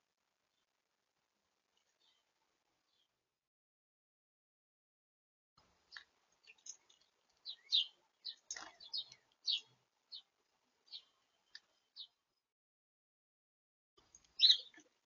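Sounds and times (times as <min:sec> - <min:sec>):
small birds chirping: 0:01.8 - 0:03.2, 0:05.6 - 0:12.5, 0:14.0 - 0:15.0.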